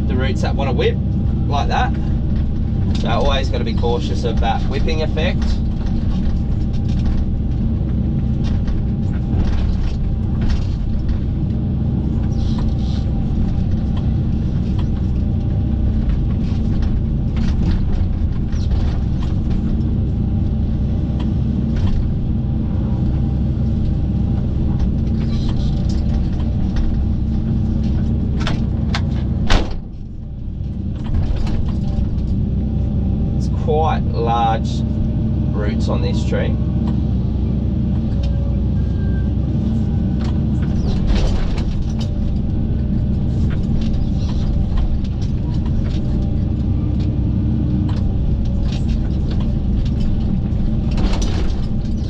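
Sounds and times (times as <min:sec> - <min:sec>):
excavator diesel engine running: 0:00.0 - 0:52.0.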